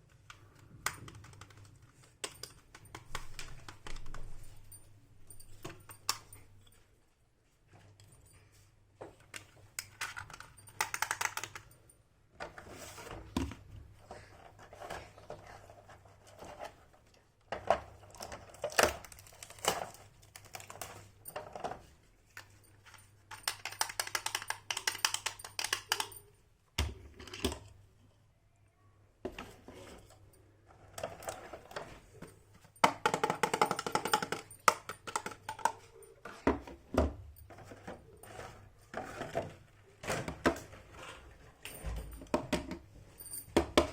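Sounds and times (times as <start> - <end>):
plastic toy pieces clicking: 9.8 - 11.7, 23.3 - 26.2.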